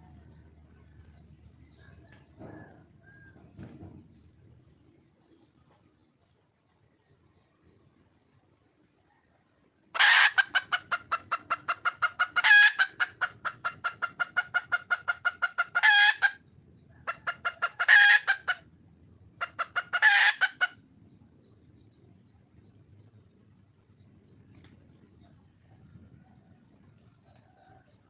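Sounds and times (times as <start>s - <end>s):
hen cackling: 10.0s - 18.7s, 19.4s - 20.8s.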